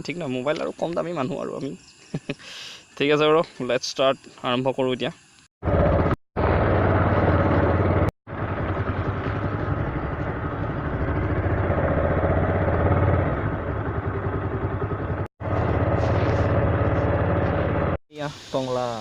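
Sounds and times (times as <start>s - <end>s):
motorcycle engine running: 5.6s - 18.0s.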